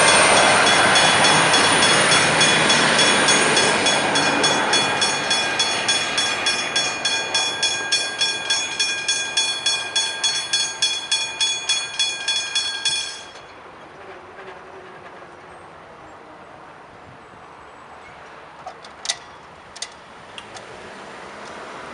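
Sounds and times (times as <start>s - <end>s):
level-crossing warning bell: 0.0s - 14.0s.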